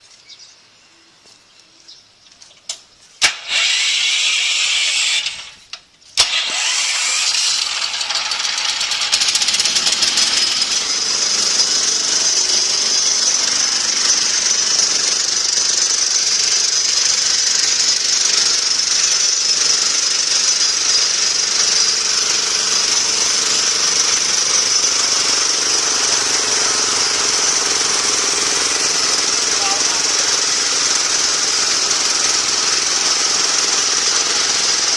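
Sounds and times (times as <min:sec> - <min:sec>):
sharp click: 0:02.6 - 0:04.0
loud hiss: 0:03.2 - 0:07.8.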